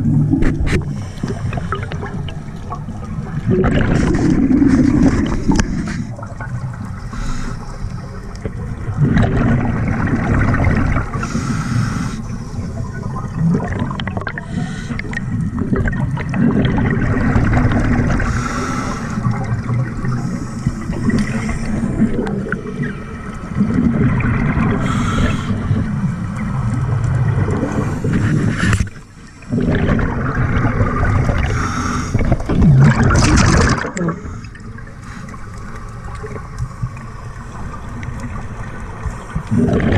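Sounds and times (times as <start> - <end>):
regulator hissing inhale: 0.8 - 1.6, 7.0 - 8.2, 11.1 - 12.9, 14.4 - 15.3, 18.2 - 19.4, 20.0 - 22.0, 24.8 - 25.8, 31.4 - 32.3, 34.2 - 35.9
bubbling exhale: 3.4 - 22.8, 23.6 - 26.1, 27.3 - 36.4.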